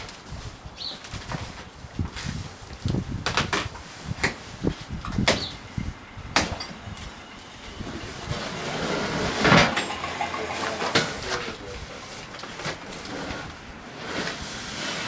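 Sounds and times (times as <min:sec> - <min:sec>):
cardboard scraping rustle: 0:00.0 - 0:05.0, 0:08.0 - 0:15.0
boxed parts knocking and clattering: 0:09.3 - 0:11.6.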